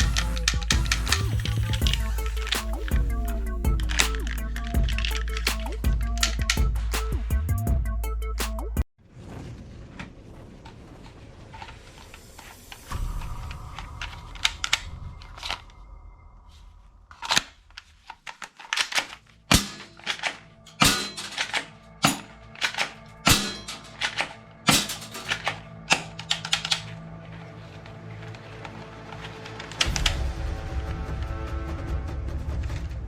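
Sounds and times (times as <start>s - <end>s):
background music: 0.0s - 8.9s, 18.4s - 33.0s.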